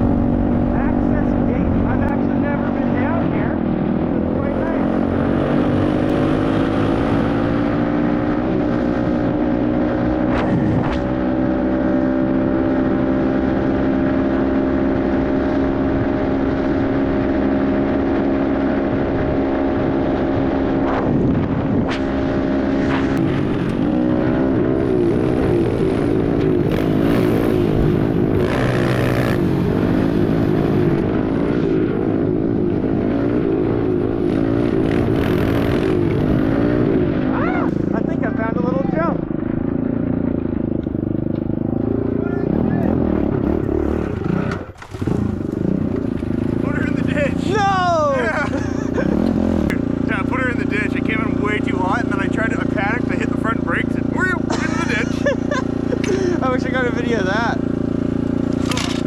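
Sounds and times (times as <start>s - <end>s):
pit bike engine running: 0.0s - 59.0s.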